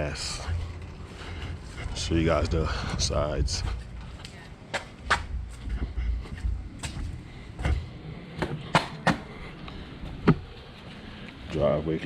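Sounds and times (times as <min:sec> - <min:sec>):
low rumble: 0:00.0 - 0:08.4
sharp clicks and knocks: 0:04.2 - 0:05.4.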